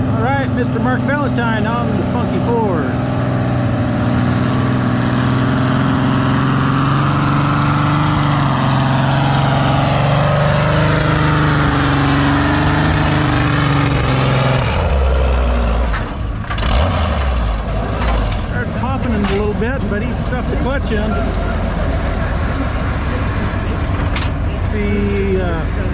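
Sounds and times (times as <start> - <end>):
tractor engine running under load: 0.0 - 25.9
low rumble: 17.4 - 25.9.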